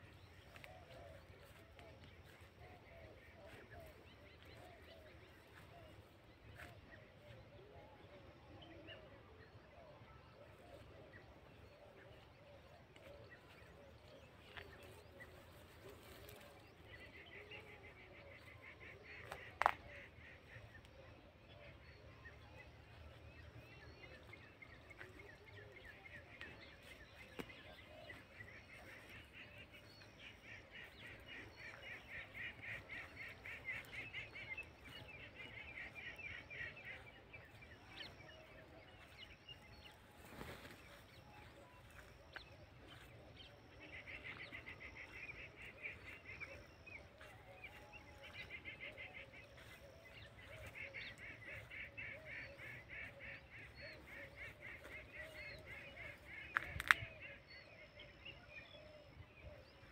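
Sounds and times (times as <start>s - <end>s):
birds chattering: 22.9s - 59.0s.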